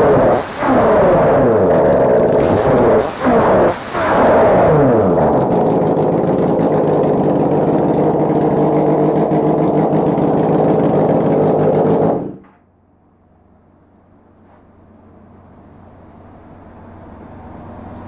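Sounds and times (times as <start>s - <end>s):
motorcycle engine idling: 1.5s - 2.5s, 4.8s - 14.3s.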